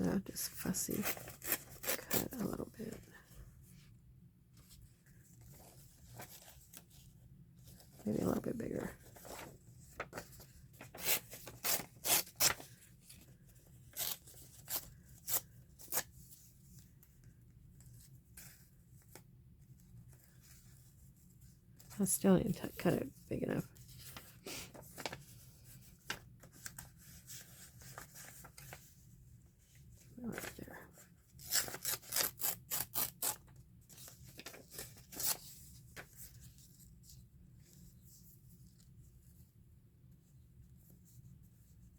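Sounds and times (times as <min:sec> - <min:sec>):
scissors cutting paper: 0:13.9 - 0:16.0, 0:31.4 - 0:33.4
scissors snipping paper: 0:31.4 - 0:33.4.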